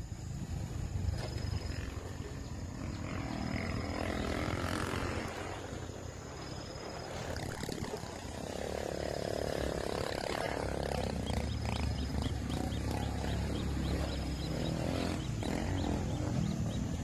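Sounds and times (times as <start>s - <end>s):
bird chicks harsh rasping call: 7.3s - 17.0s.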